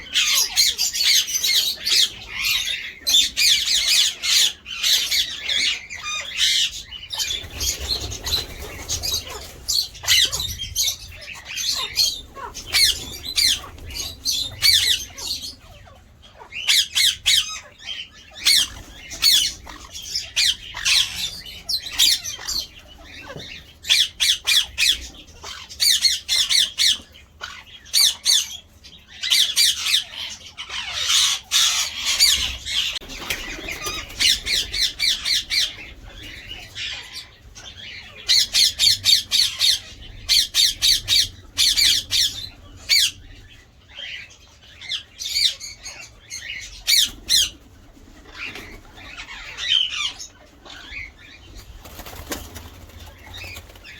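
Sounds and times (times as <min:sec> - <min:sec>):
parakeets squawking: 0:00.0 - 0:53.9.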